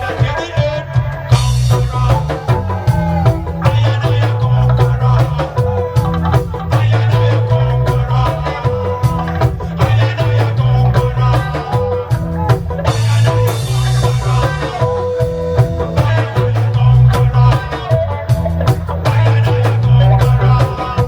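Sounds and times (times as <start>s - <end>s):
reggae band playing: 0.0s - 21.0s.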